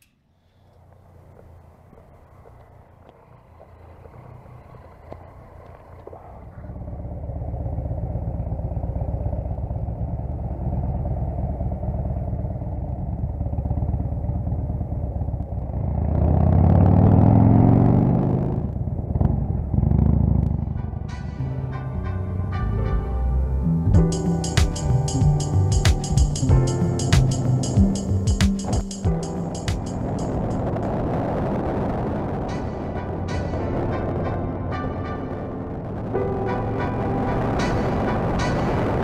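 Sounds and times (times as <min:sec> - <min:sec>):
motorcycle engine revving: 0:01.3 - 0:20.8.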